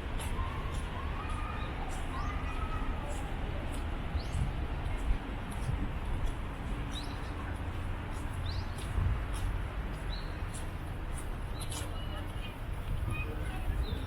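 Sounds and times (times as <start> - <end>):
small birds chirping: 1.4 - 5.0, 6.6 - 12.1.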